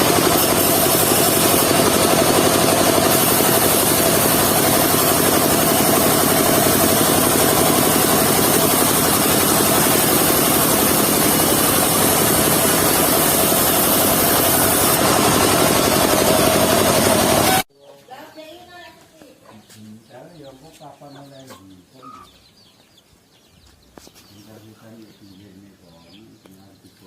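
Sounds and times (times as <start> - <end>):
sawmill engine running: 0.0 - 17.7.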